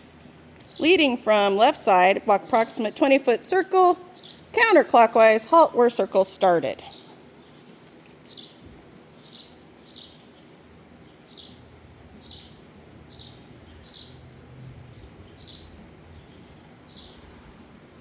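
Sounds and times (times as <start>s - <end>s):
faint outdoor background noise: 0.0s - 18.0s
small bird chirping: 4.0s - 4.6s, 6.8s - 17.8s.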